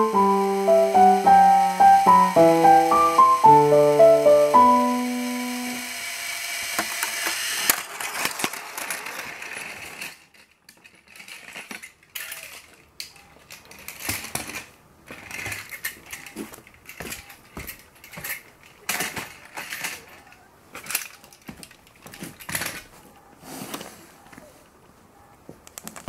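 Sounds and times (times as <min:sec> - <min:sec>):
electronic organ melody: 0:00.0 - 0:05.9
toy train rattling on track: 0:00.0 - 0:23.0.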